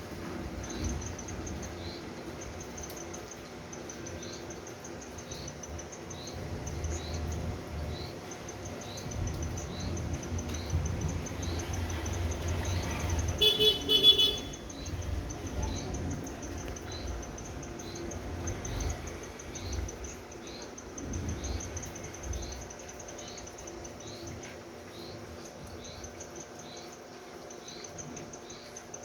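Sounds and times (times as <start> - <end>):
low city rumble: 0.0 - 29.0
loud horn-like tone: 13.4 - 14.6.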